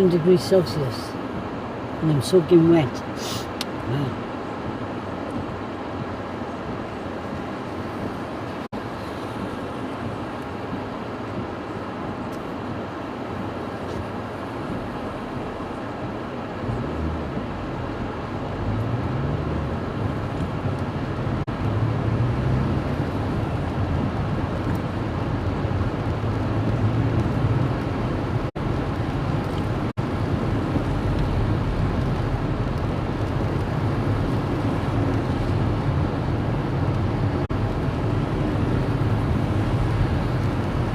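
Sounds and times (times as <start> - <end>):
road noise: 0.0 - 40.9
car engine: 3.6 - 40.9.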